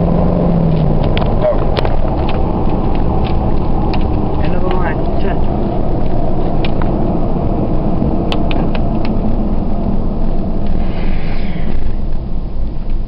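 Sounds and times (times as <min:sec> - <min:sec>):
engine exhaust low rumble: 0:00.0 - 0:13.0.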